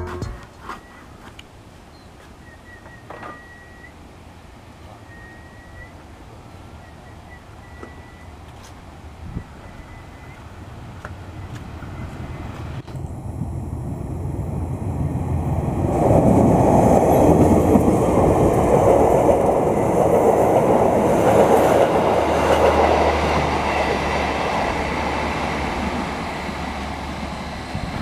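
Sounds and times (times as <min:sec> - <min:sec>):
loud rushing rumble: 0:10.6 - 0:28.0.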